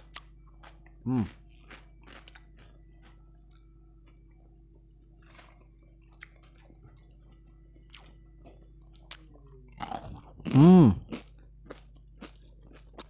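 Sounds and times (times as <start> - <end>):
person chewing crispy chicken: 0.0 - 13.0
steady low hum: 0.0 - 13.0
mouth smacks and crunches: 5.2 - 13.0.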